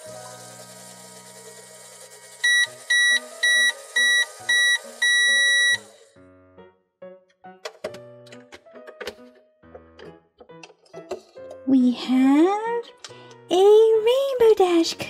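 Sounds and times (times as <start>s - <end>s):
toy microwave beeping: 0.0s - 6.1s
soft background music: 0.0s - 15.0s.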